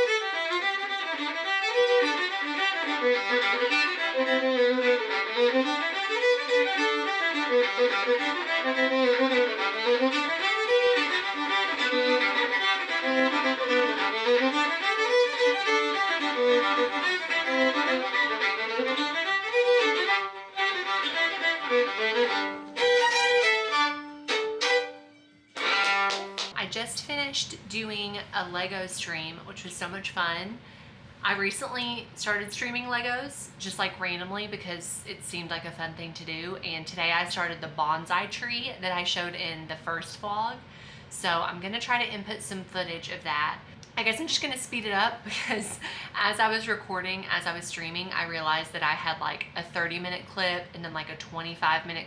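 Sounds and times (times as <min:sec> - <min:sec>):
fast solo fiddle tune: 0:00.0 - 0:26.5.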